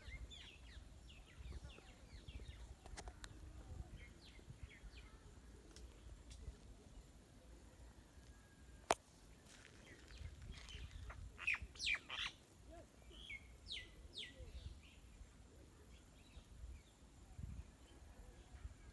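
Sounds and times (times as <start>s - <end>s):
birds chirping: 9.8s - 12.4s.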